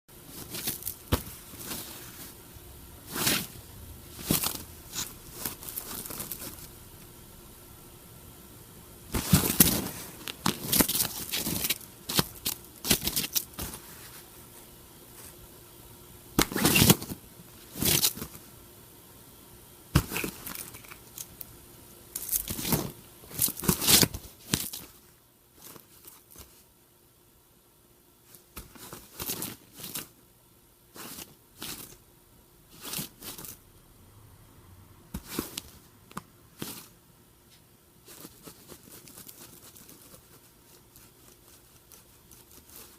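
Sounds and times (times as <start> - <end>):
crinkly toy rustling: 0.2 - 2.4, 3.0 - 6.8, 9.1 - 14.3, 28.2 - 30.2, 36.6 - 37.0, 38.0 - 42.9.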